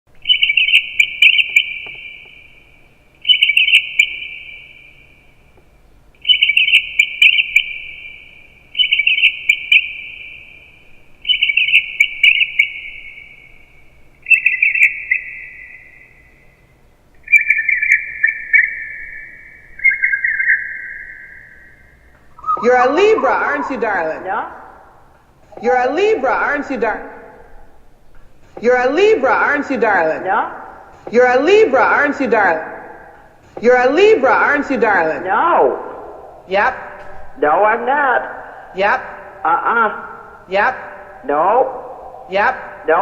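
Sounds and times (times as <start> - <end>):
altered speech bird-like chirps: 22.4 - 24.9, 25.5 - 27.5, 28.6 - 37.0.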